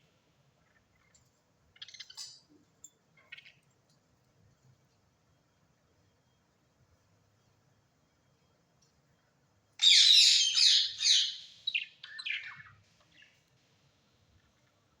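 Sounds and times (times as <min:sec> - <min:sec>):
bird chirping: 0:09.8 - 0:13.4.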